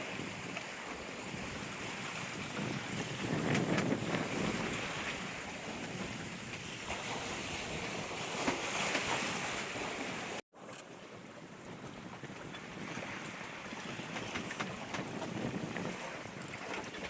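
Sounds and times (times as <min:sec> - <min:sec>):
wind buffeting microphone: 0:00.0 - 0:10.4, 0:11.2 - 0:17.0
waves rushing: 0:00.0 - 0:11.3.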